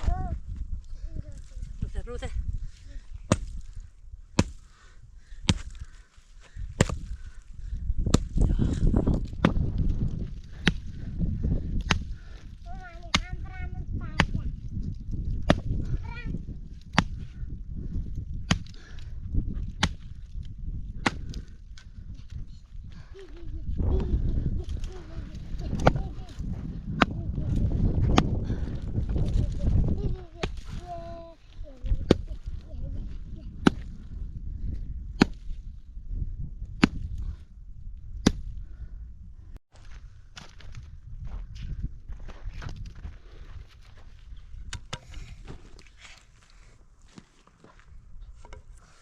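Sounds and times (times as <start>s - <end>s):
axe chopping wood: 3.3s - 4.7s, 5.4s - 5.8s, 6.8s - 7.1s, 8.0s - 8.4s, 10.4s - 11.0s, 11.8s - 12.2s, 15.2s - 15.9s, 16.8s - 17.2s, 18.5s - 18.8s, 19.6s - 21.5s, 27.0s - 27.2s, 28.0s - 28.4s, 33.6s - 34.0s, 35.2s - 35.6s, 36.8s - 37.2s, 38.2s - 38.5s, 44.7s - 45.1s.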